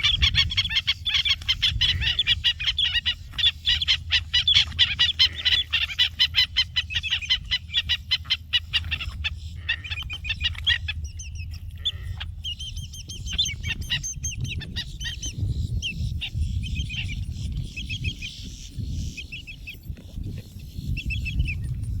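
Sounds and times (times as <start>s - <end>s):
wading birds squawking: 0.0s - 19.8s
steady low rumble: 0.0s - 22.0s.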